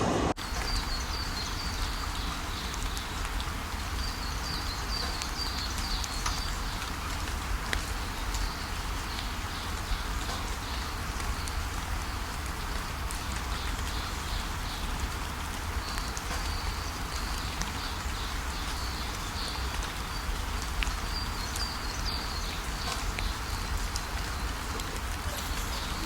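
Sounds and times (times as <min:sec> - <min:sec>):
faint high chirps: 0:24.8 - 0:26.0.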